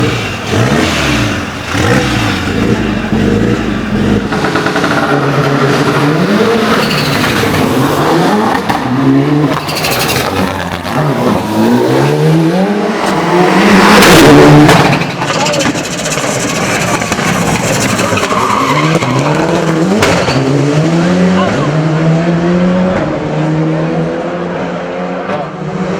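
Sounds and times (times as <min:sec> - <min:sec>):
loud rush of noise: 0:00.0 - 0:18.3
car engine accelerating hard: 0:00.0 - 0:25.9.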